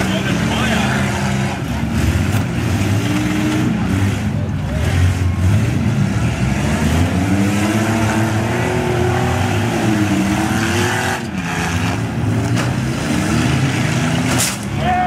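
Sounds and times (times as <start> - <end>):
minivan engines revving: 0.0 - 15.0.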